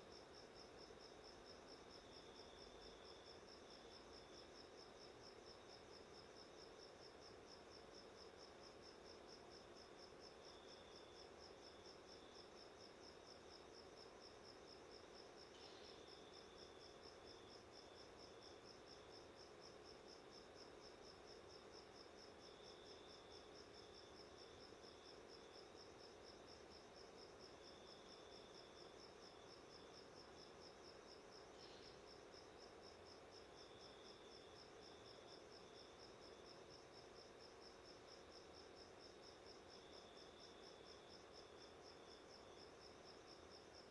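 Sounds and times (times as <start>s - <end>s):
lower insect chirp: 0.0s - 43.9s.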